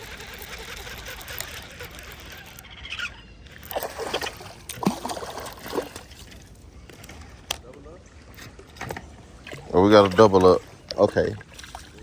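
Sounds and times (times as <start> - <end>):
water splashing and sloshing: 3.5 - 12.0.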